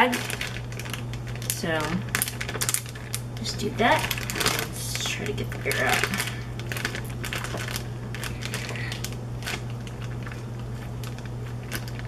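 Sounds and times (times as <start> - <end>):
plastic bag crinkling: 0.0 - 12.0
steady low hum: 0.0 - 12.0.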